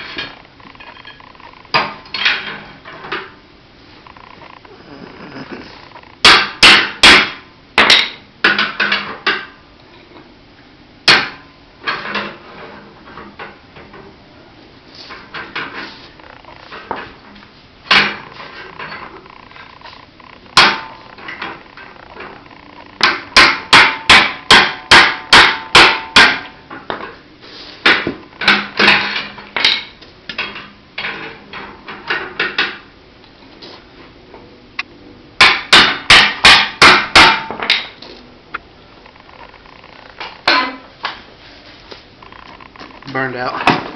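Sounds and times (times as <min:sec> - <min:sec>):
hammer striking metal: 0:23.0 - 0:26.5.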